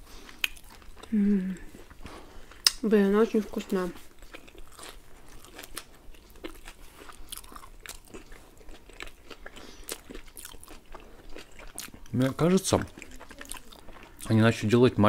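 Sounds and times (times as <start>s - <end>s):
people chewing food: 0.0s - 15.0s
clicking mouth sounds: 2.6s - 2.8s.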